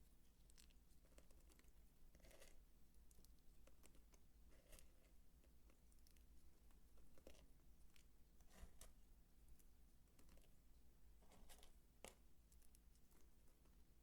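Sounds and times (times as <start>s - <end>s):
soap bar clicking and scraping: 0.4s - 7.6s.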